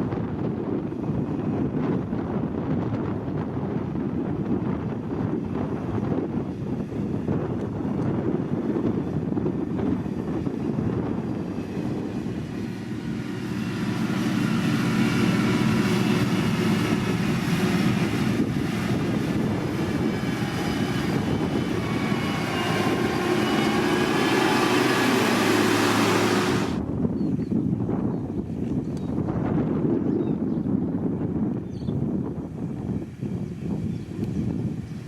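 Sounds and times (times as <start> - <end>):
heavy machinery diesel engine: 8.3 - 26.8
steady whine: 11.4 - 26.8.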